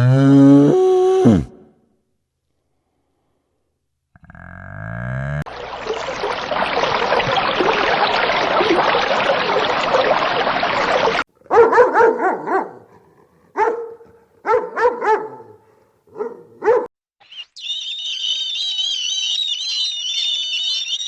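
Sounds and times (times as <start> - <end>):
dog barking: 11.4 - 16.9.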